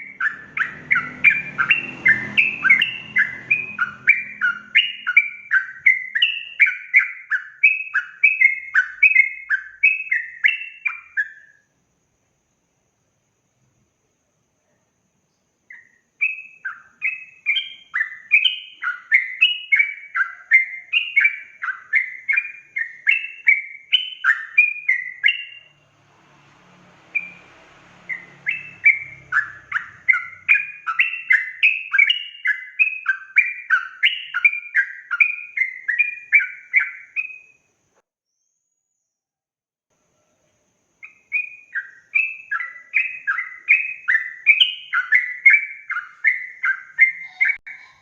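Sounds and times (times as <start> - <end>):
bird singing bubbly chirps: 0.0 - 11.6, 15.7 - 25.8, 28.1 - 37.6, 41.0 - 48.0
faint hiss: 11.6 - 16.2.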